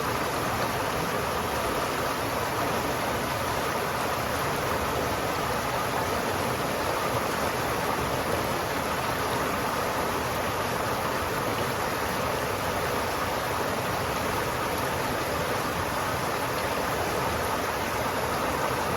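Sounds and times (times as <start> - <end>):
river water rushing: 0.0 - 18.9.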